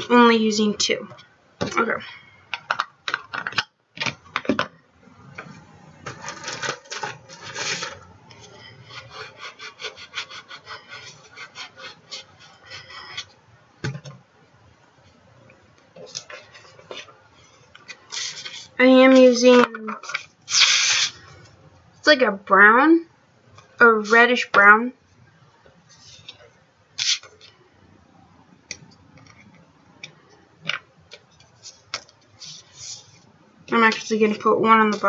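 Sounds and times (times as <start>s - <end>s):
rubbing and scraping on paper: 6.0s - 13.4s, 16.0s - 19.4s, 20.0s - 21.3s, 25.9s - 27.5s, 31.2s - 35.0s.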